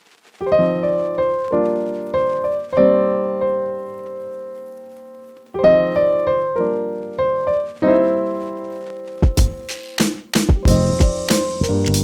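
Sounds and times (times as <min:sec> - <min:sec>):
slow piano chords: 0:00.4 - 0:09.8, 0:10.5 - 0:12.0.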